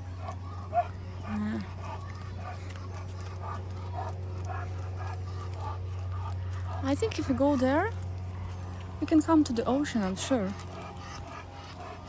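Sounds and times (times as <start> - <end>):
steady low hum: 0.0 - 12.0
walking footsteps: 0.0 - 12.0.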